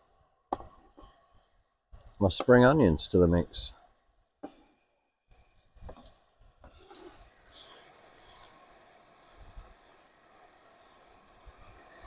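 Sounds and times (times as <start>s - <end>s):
food sizzling in a skillet: 6.7s - 12.0s.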